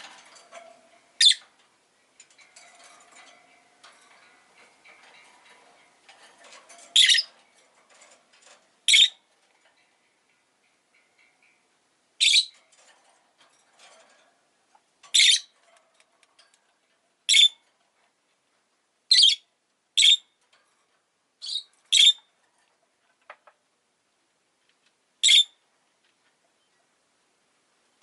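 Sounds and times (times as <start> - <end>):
faint soft bird chatter: 0.0 - 23.6, 24.8 - 27.2
bird high-pitched calls: 1.2 - 1.4, 7.0 - 7.3, 8.9 - 9.2, 12.2 - 12.6, 15.1 - 15.5, 17.3 - 17.6, 19.1 - 19.4, 21.4 - 22.2, 25.2 - 25.6.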